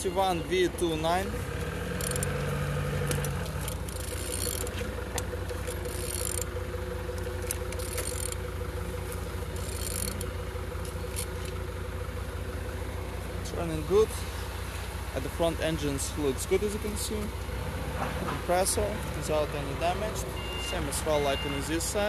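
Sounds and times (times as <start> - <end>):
wrench ratcheting clicks: 2.0 - 2.4, 3.1 - 4.7, 5.5 - 6.5, 7.2 - 8.4, 9.6 - 11.6.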